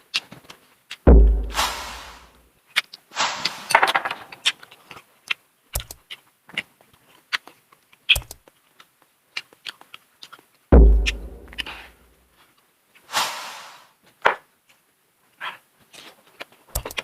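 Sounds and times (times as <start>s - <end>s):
sharp knocks: 1.1s - 2.3s, 10.8s - 11.9s.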